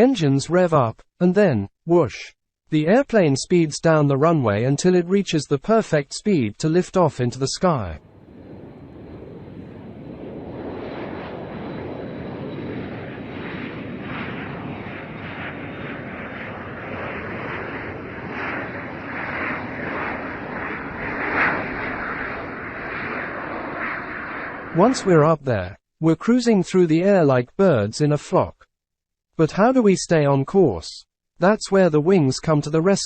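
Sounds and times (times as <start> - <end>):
jet airliner taking off: 8.0 - 25.4.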